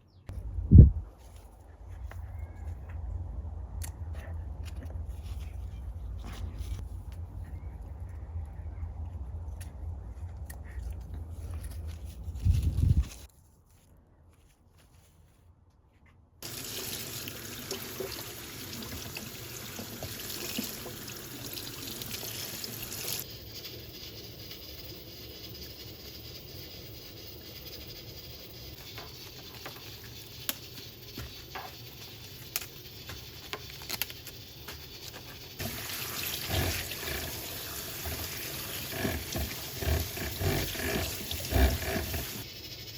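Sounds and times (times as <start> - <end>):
tap water running into sink: 16.4 - 23.2, 35.6 - 42.4.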